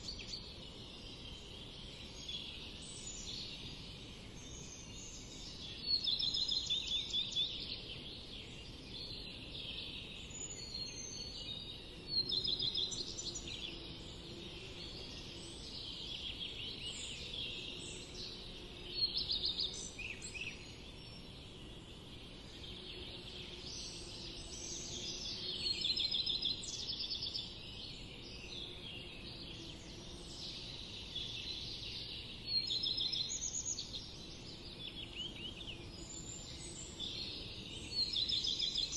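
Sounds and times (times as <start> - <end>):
small birds chirping and trilling: 0.0 - 38.9.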